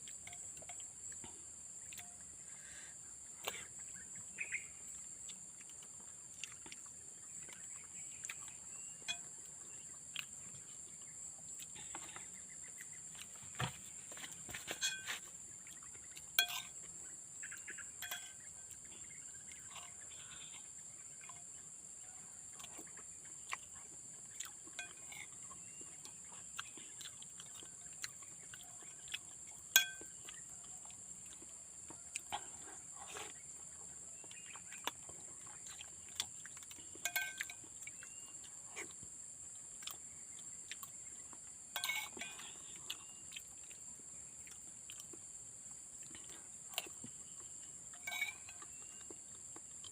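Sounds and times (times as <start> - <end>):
insects droning: 0.0 - 49.9
spoon clinking on plate: 14.6 - 15.2, 16.4 - 16.8, 18.0 - 18.4, 29.8 - 30.2, 37.0 - 37.7, 41.7 - 42.5, 48.0 - 48.8.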